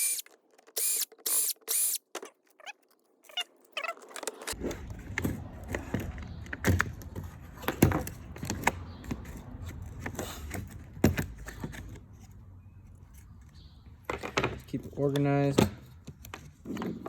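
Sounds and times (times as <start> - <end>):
power drill running: 0.0 - 2.0
small metal parts rattling: 0.0 - 7.1.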